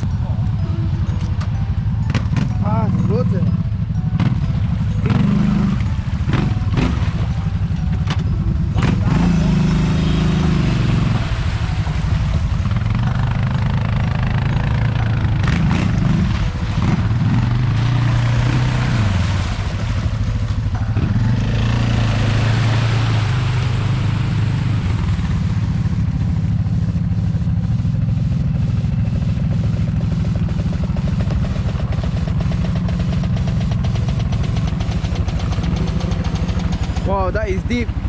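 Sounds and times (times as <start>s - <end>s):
off-road engine under load: 0.0s - 38.0s
rushing noise: 22.1s - 37.4s.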